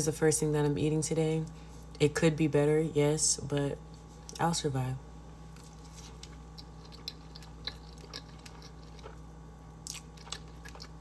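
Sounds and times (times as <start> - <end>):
person chewing food: 5.5 - 11.0.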